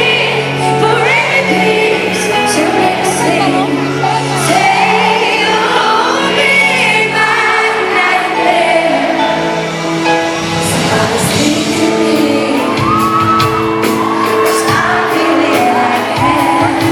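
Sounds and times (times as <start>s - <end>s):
woman singing a slow ballad: 0.0s - 7.4s, 10.7s - 13.5s, 14.3s - 16.9s
audience singing along: 0.0s - 16.9s
band accompaniment: 0.0s - 16.9s.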